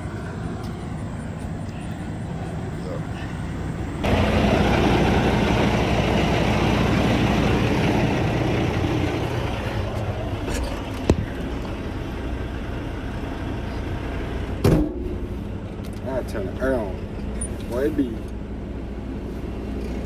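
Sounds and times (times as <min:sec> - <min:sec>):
diesel truck engine idling: 0:00.0 - 0:20.0
loud rushing noise: 0:03.7 - 0:10.3.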